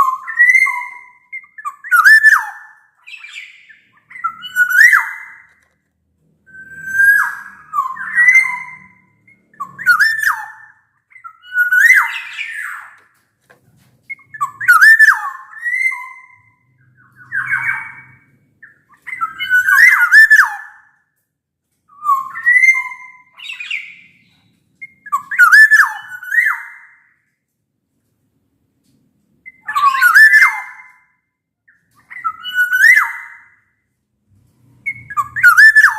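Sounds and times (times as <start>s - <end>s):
bird singing fluting whistles: 0.0s - 5.4s, 6.5s - 12.9s, 14.1s - 18.2s, 19.1s - 20.7s, 22.0s - 26.9s, 29.5s - 31.1s, 32.1s - 33.5s, 34.8s - 35.9s.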